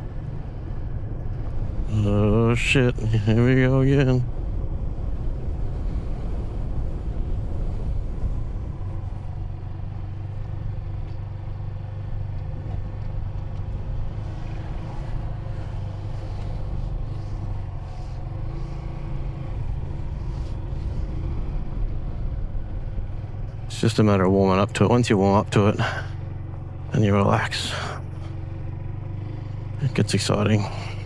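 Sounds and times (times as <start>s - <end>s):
motorcycle engine running: 4.3s - 31.0s.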